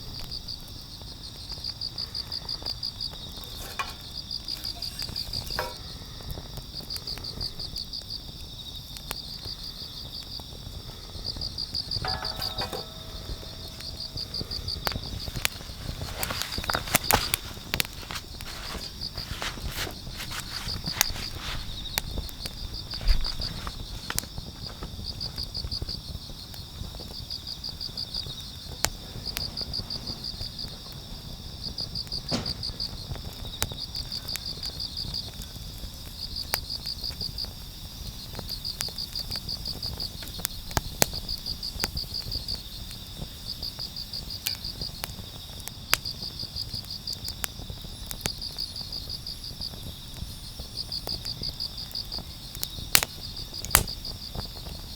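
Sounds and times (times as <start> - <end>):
crickets chirping in pulsed trills: 0.0 - 54.9
wood fire snapping: 1.0 - 8.4, 10.4 - 25.4, 27.4 - 37.3, 51.1 - 54.7
high insect ringing: 11.3 - 24.1.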